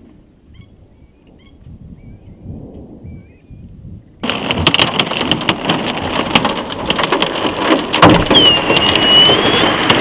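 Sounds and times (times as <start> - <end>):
hailstones clattering: 4.2 - 10.0
thin whistling tone: 8.3 - 9.9.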